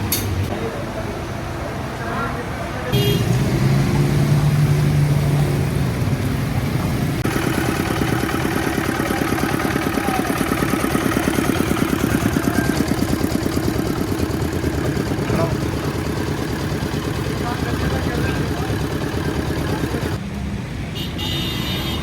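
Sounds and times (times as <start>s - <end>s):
small engine running: 7.2s - 20.2s.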